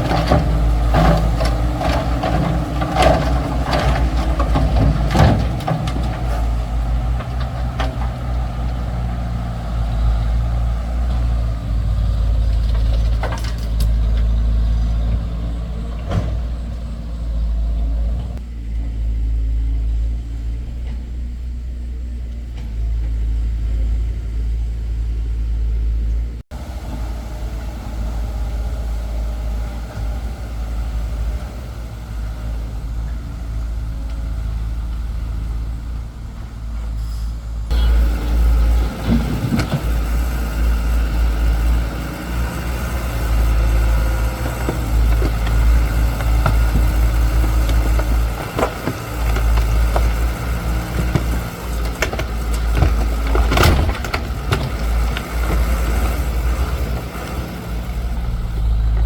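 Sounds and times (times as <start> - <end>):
excavator diesel engine humming: 0.0 - 59.0
sharp knocks and clatters: 42.2 - 57.6.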